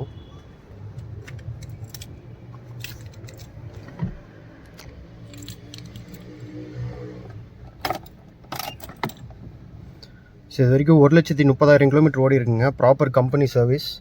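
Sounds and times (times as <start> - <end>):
keys jangling: 1.2 - 3.9, 4.8 - 6.5.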